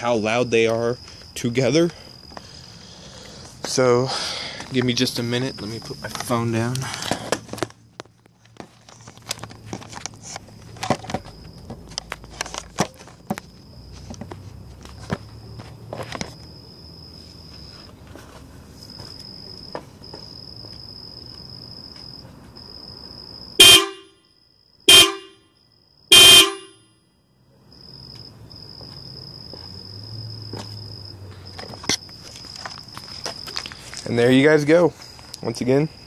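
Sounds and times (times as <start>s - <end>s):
car horn blasts: 23.6s - 24.2s, 24.9s - 26.9s.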